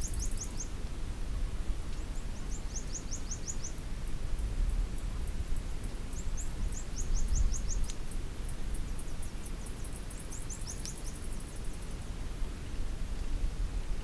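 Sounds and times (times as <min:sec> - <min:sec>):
bird chirping: 0:00.0 - 0:00.7, 0:02.0 - 0:03.8, 0:06.1 - 0:08.0, 0:08.7 - 0:12.0.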